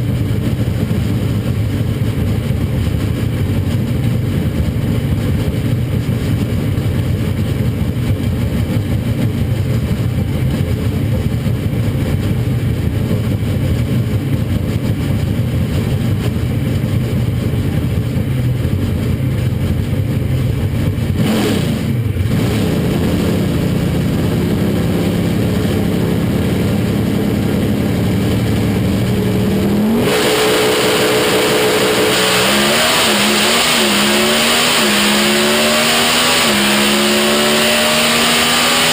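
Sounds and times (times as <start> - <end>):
truck engine revving: 18.6 - 38.9.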